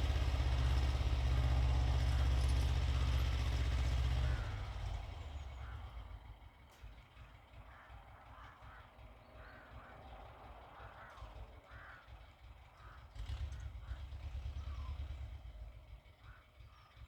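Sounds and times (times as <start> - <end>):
crows cawing: 1.4 - 6.3, 7.2 - 14.9, 16.2 - 16.9.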